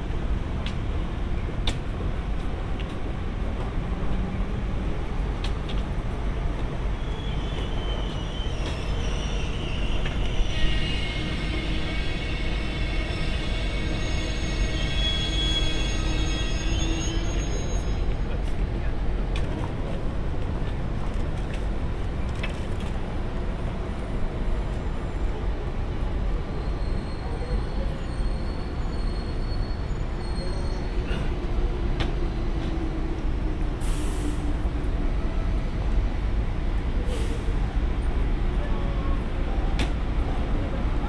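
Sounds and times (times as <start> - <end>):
train wheels rumbling: 0.0 - 41.0
short air hisses: 33.8 - 34.4.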